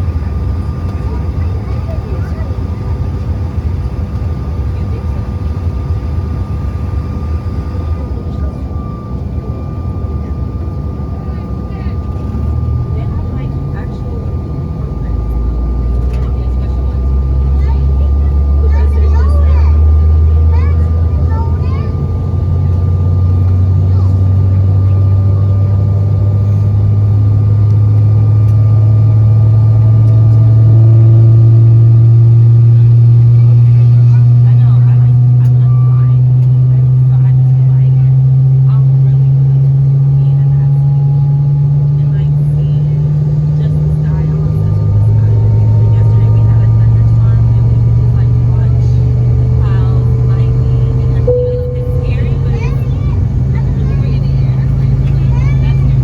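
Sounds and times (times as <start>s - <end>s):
jet engines rumbling in cabin: 0.0s - 56.0s
faint steady tones: 36.0s - 56.0s.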